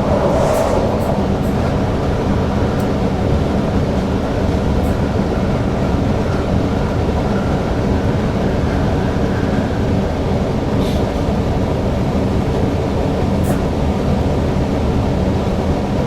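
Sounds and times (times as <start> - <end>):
train rumbling in motion: 0.0 - 16.0.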